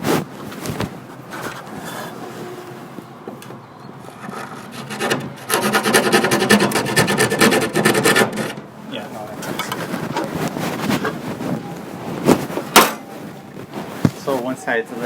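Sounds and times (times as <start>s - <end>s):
tool rasping against wood: 4.2s - 8.6s.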